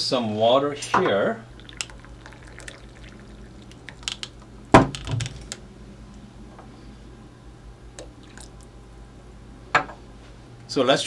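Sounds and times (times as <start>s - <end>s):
tableware clatter: 0.8s - 1.3s
tableware clicking: 0.8s - 1.4s.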